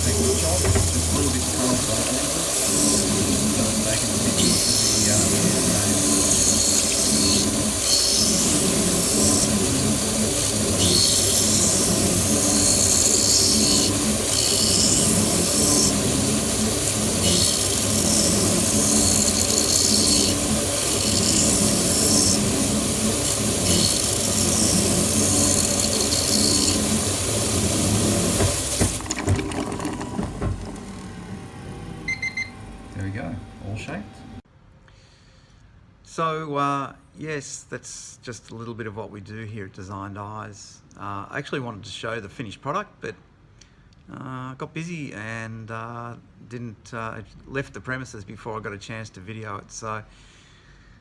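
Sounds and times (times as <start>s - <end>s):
lens edger machine cutting: 0.0s - 34.1s.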